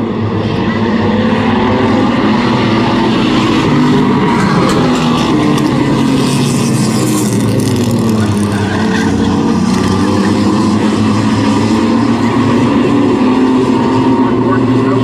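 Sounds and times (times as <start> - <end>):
race truck engines running: 0.0 - 15.0.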